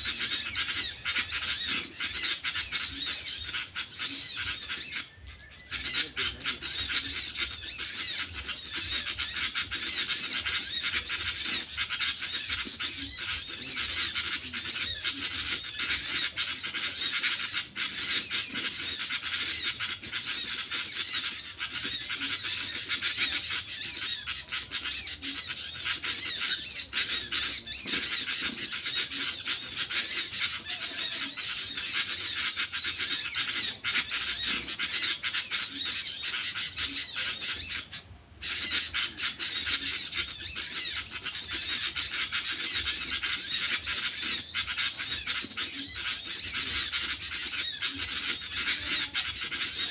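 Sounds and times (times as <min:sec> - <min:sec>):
high-pitched bird chirping: 0:00.0 - 0:49.9.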